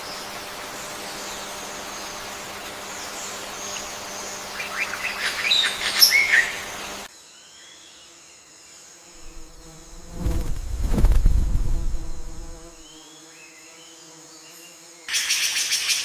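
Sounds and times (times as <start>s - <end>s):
forest ambience: 0.0s - 16.0s
bird chirping and whistling: 4.6s - 6.6s.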